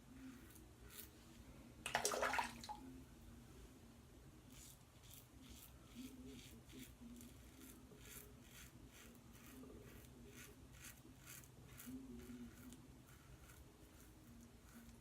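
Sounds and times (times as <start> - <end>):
razor scraping stubble: 0.2 - 1.2, 4.5 - 15.0.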